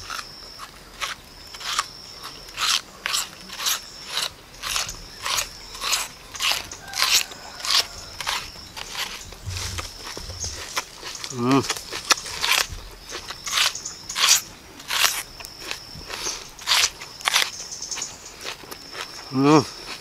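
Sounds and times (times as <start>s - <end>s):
crunching bites of raw onion: 0.0s - 17.6s.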